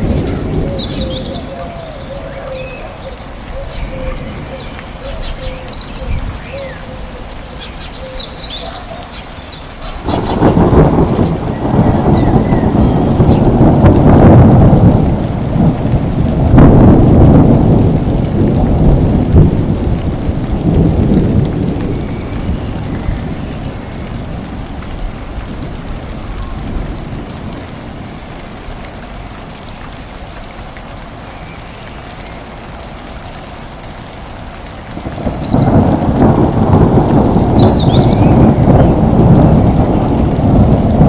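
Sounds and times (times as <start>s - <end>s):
rolling thunder: 0.0s - 2.8s, 9.8s - 28.8s, 34.9s - 41.0s
steady rain: 0.0s - 41.0s.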